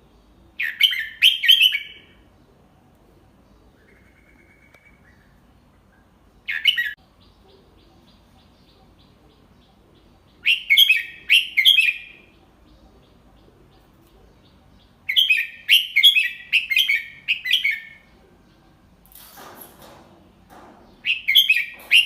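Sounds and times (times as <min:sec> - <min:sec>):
bird chirping song: 0:00.0 - 0:22.0.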